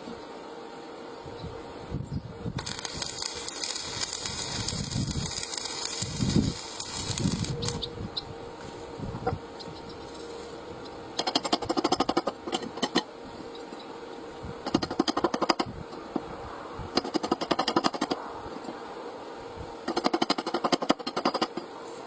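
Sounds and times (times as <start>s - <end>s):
steady hum: 0.0s - 22.0s
welding arc crackling: 2.5s - 8.3s, 9.9s - 13.1s, 14.6s - 15.8s, 16.9s - 18.2s, 19.8s - 21.6s.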